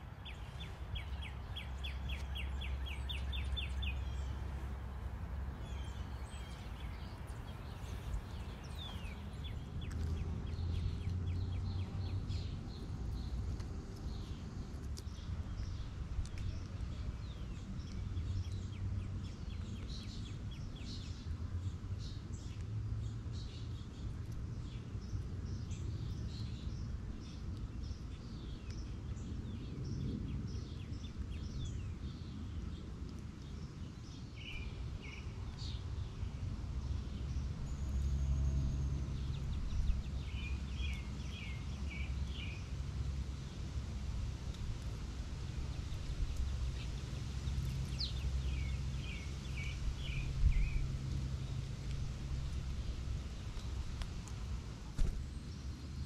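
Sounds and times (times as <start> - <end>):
steady low rumble: 0.0 - 21.8
songbirds chirping and calling: 0.0 - 56.0.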